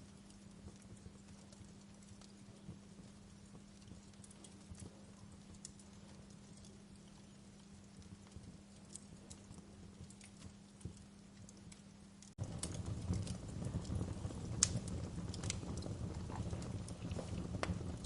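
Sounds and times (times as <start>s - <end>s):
fireplace crackling: 0.0s - 18.0s
low rumble of fire: 0.0s - 18.0s.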